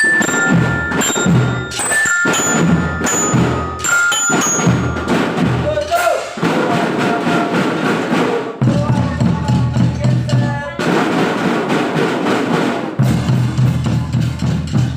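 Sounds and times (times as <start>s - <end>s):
melody on pitched instruments: 0.0s - 6.4s
snare and bass drums: 0.0s - 14.9s.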